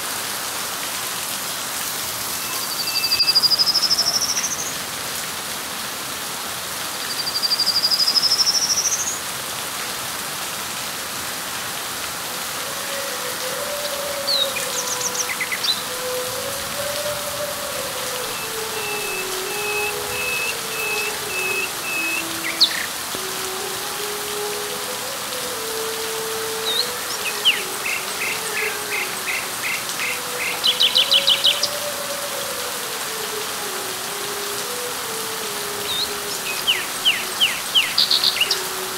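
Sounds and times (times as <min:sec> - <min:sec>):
rain falling on leaves: 0:00.0 - 0:38.9
birds calling and chirping: 0:12.8 - 0:23.0, 0:26.5 - 0:31.8, 0:35.8 - 0:38.8.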